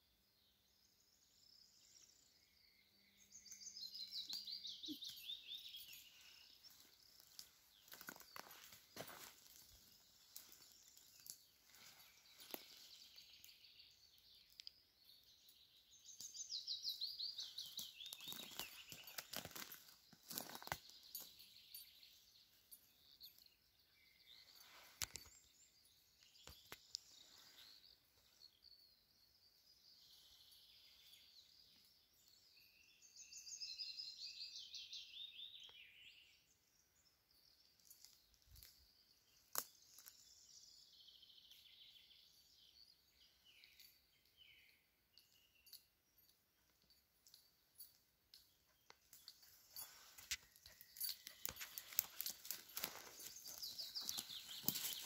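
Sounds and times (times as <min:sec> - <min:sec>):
faint clicks and rustles: 0:45.7 - 0:55.0.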